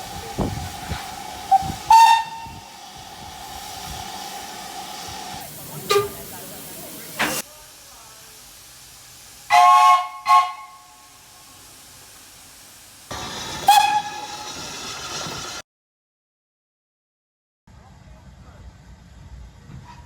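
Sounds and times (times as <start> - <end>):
steam locomotive whistle: 0.0 - 5.2, 5.9 - 6.3, 9.5 - 11.2, 13.1 - 15.6
steam hissing: 0.0 - 15.6.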